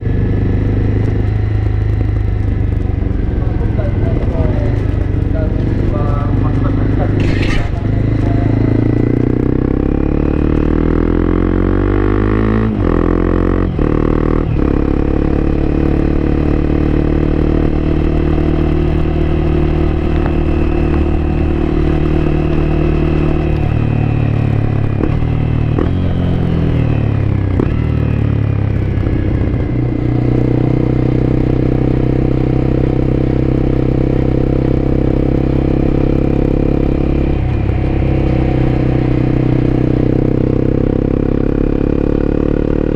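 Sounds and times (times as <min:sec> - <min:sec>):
motorcycle engine while riding: 0:00.0 - 0:42.9.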